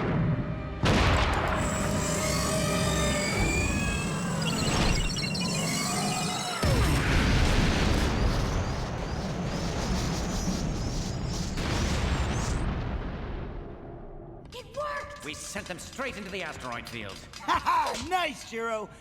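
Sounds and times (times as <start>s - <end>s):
loud rumbling explosion: 0.0s - 2.1s, 6.6s - 14.4s
music: 0.0s - 3.8s.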